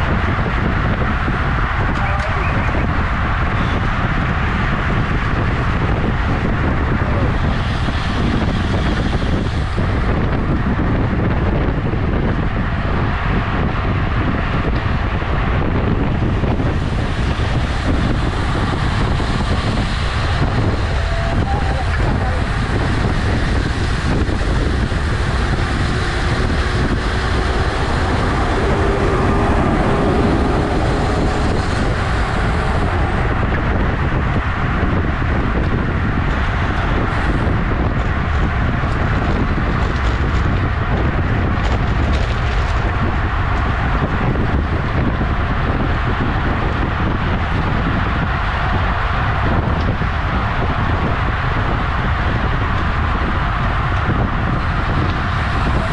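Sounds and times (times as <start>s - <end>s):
road and tyre noise: 0.0s - 55.9s
wind buffeting microphone: 0.0s - 55.9s.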